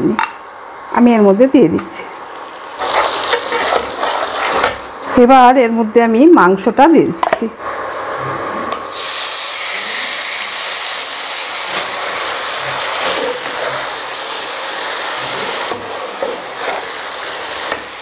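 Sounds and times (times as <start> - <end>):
chicken sizzling in a frying pan: 2.1 - 5.2, 8.8 - 18.0.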